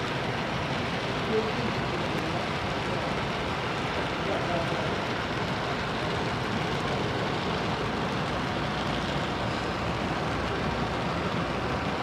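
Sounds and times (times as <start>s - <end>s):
model train rumbling: 0.0s - 12.0s.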